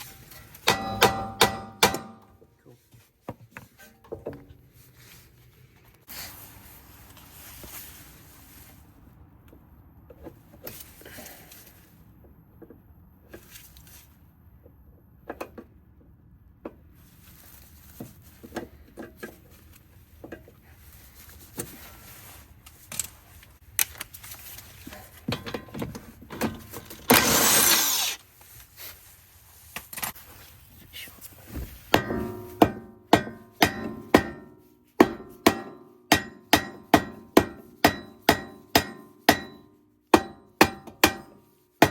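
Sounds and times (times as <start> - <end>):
tool clinks and knocks: 0.0 - 2.4, 24.9 - 27.1
hammer striking metal: 0.1 - 2.4, 32.0 - 41.9.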